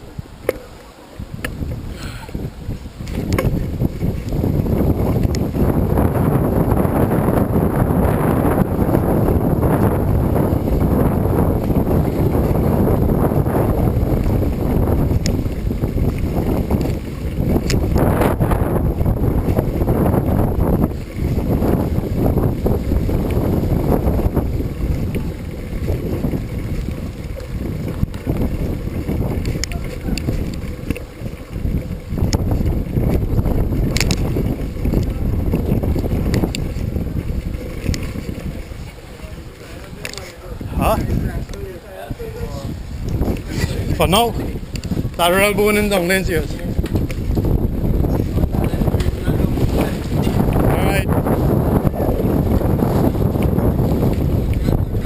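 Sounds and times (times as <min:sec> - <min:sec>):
wind buffeting the microphone: 0:00.0 - 0:55.0
sharp clicks and rattles: 0:27.8 - 0:38.9.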